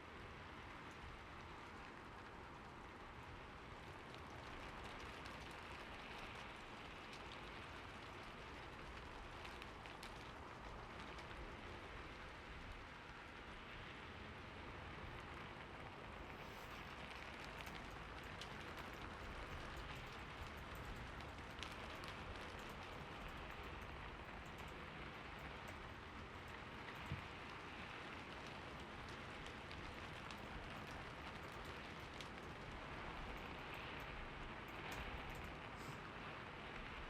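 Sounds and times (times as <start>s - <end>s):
steady rain hiss: 0.0s - 37.0s.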